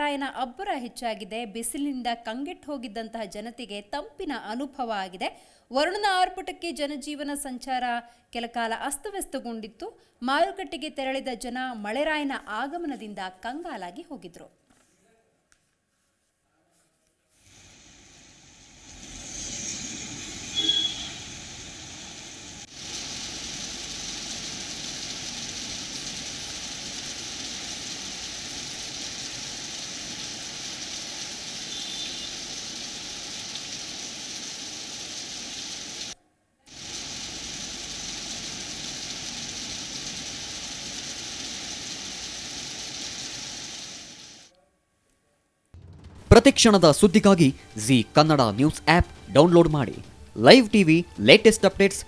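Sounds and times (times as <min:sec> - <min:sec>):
heavy rain falling: 0:17.5 - 0:44.4.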